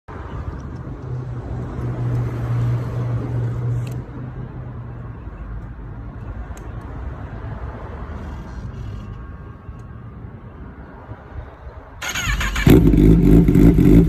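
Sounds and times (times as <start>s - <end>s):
motorcycle engine running: 12.1s - 14.0s.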